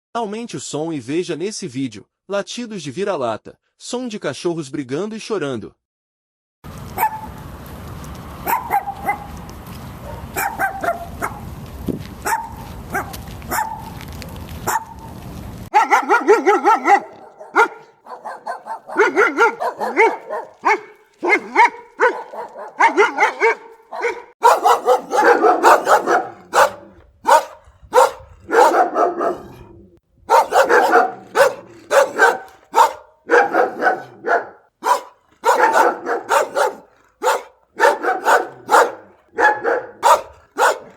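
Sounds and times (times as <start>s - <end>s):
dog barking: 7.0s - 7.3s, 8.4s - 9.3s, 10.0s - 11.4s, 12.2s - 14.0s, 14.6s - 15.0s, 15.7s - 40.9s.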